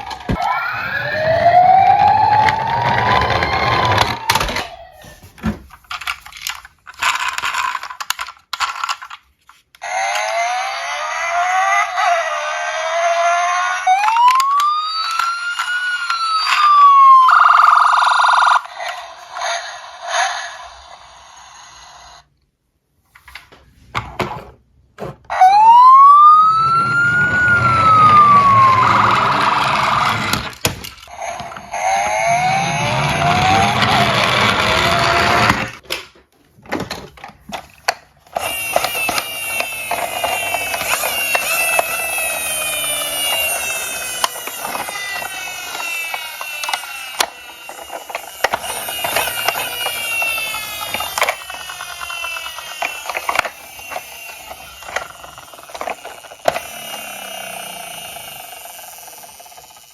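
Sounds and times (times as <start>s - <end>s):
siren wailing: 0.0s - 5.3s, 9.9s - 18.7s, 25.3s - 30.5s, 31.1s - 35.8s, 38.4s - 59.8s
overlapping rising tones: 0.3s - 4.9s, 25.6s - 30.3s, 31.7s - 35.6s.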